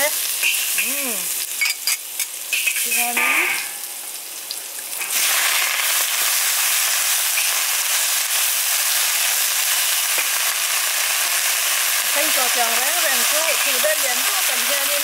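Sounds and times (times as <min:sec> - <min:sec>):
vegetables sizzling in a wok: 0:00.0 - 0:15.0
metal spatula turning leaves: 0:01.8 - 0:03.9.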